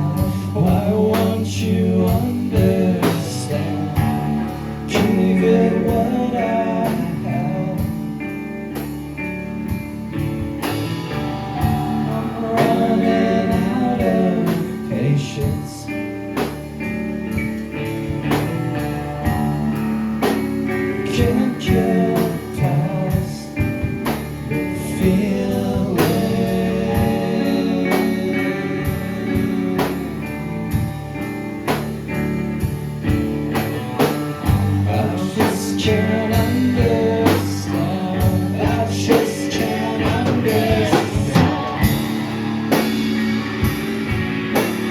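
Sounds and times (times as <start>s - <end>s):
person singing: 0.0s - 8.2s, 11.5s - 16.0s, 19.2s - 30.9s, 34.4s - 42.9s
bass guitar: 0.0s - 44.9s
guitars: 0.0s - 44.9s
drum beat: 36.4s - 44.9s.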